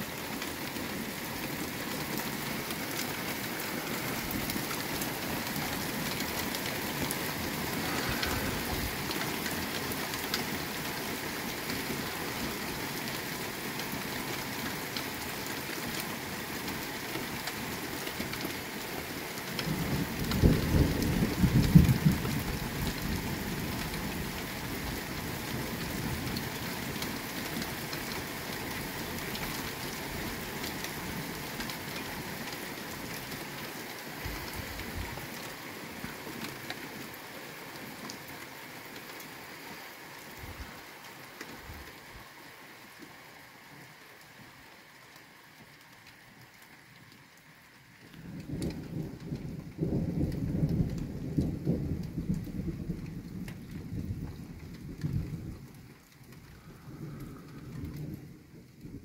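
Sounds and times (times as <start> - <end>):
rain on road and rooftops: 0.0 - 59.0
low rumble of thunder: 3.3 - 9.7, 19.6 - 26.2, 48.2 - 59.0.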